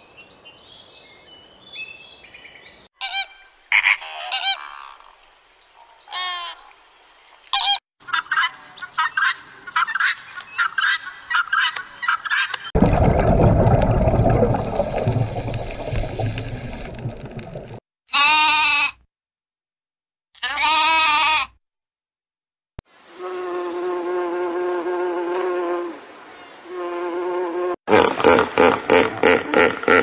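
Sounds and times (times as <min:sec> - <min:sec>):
lamb bleating: 0:18.1 - 0:19.0, 0:20.4 - 0:21.6
bumblebee buzzing: 0:23.2 - 0:26.0, 0:26.7 - 0:27.8.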